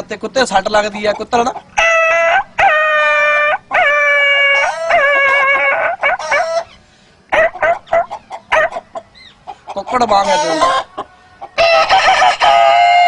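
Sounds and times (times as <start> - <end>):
man imitating dog yelping: 3.7 - 6.5.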